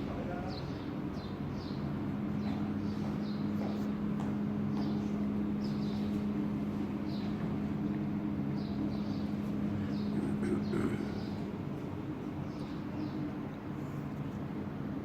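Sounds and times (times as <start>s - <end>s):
low mechanical hum: 0.0s - 15.0s
small birds chirping: 0.2s - 6.3s, 7.0s - 7.4s, 8.5s - 13.8s.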